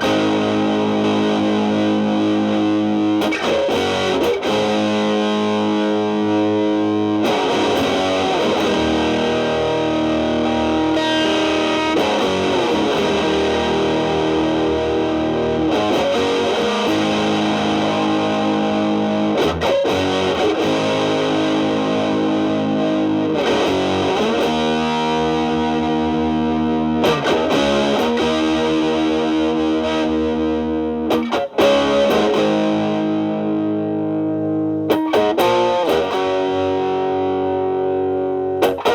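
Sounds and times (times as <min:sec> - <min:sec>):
distorted electric guitar: 0:00.0 - 0:38.9.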